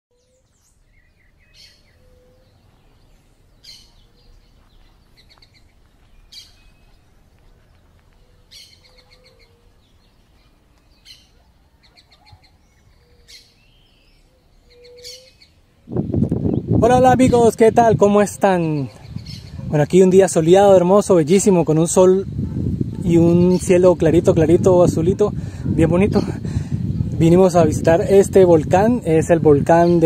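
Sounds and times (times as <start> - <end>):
bird high call with trill: 1.6 - 2.6, 8.2 - 9.7, 11.0 - 15.6.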